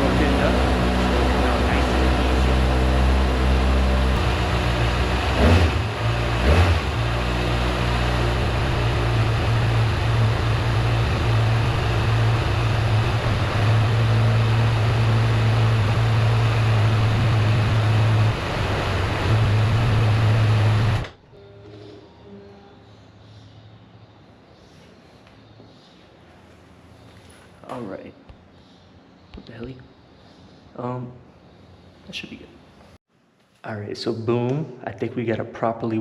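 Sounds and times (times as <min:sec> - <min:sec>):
motorcycle engine revving and idling: 0:00.0 - 0:21.1.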